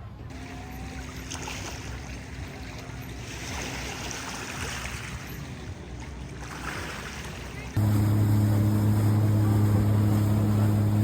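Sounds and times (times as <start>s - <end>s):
water lapping around a kayak: 0.0s - 11.0s.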